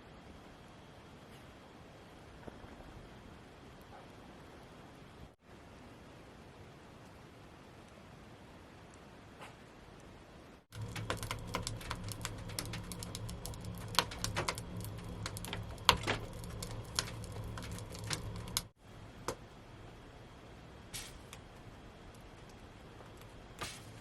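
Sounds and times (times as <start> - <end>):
low rumble: 10.7 - 18.8
wood fire crackling and popping: 10.7 - 19.5, 20.8 - 24.0.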